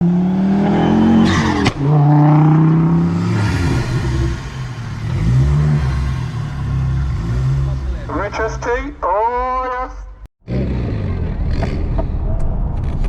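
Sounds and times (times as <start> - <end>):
car engine revving hard: 0.0 - 8.4.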